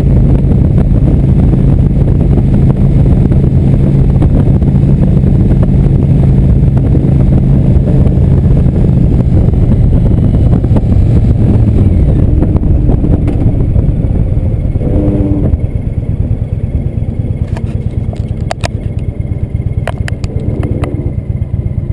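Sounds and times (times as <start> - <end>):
motorcycle engine low note: 0.0 - 21.9
sharp ticks: 17.4 - 19.1, 19.7 - 21.1.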